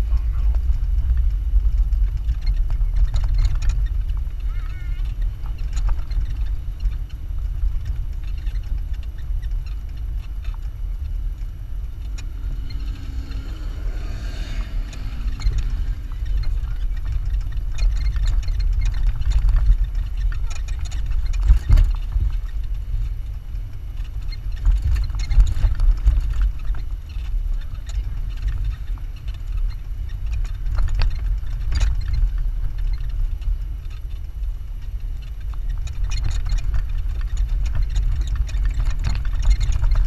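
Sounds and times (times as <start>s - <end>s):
knocks and rattles: 0.0s - 23.1s
vehicle engine rumble: 0.0s - 40.0s
vehicle jolt: 0.0s - 40.0s.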